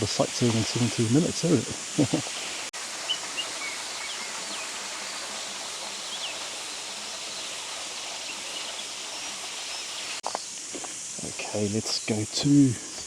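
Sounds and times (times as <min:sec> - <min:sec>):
stream rushing: 0:00.0 - 0:10.2.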